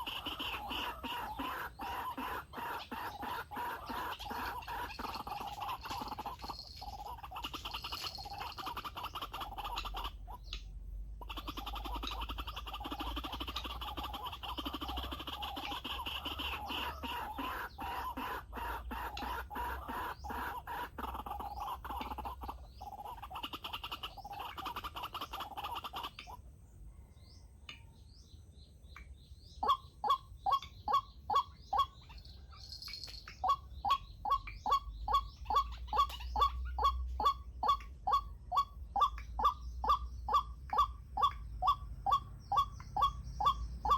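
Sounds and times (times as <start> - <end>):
loud rising bird calls: 0.0 - 10.5
waterhens clucking: 0.0 - 26.4.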